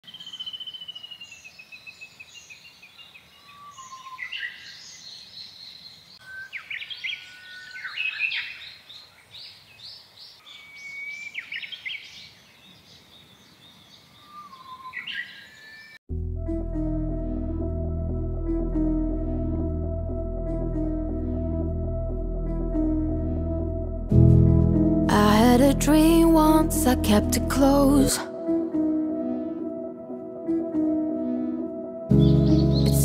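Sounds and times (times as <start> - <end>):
songbirds singing: 0.0 - 16.0, 32.1 - 33.0
soft ambient music: 16.1 - 33.0.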